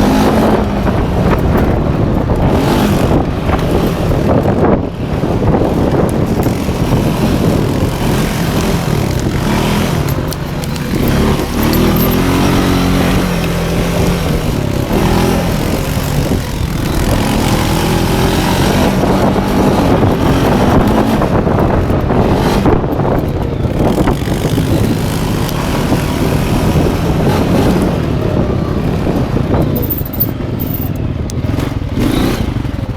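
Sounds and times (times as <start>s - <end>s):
quad bike engine revving: 0.0s - 4.4s, 5.1s - 22.6s, 31.4s - 32.9s.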